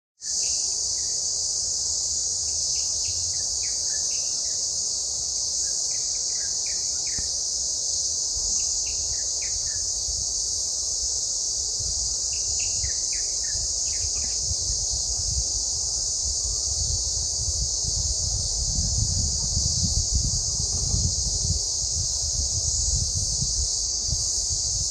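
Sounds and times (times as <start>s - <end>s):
cicadas shrilling: 0.2s - 24.9s
wind rumble on microphone: 8.0s - 24.9s.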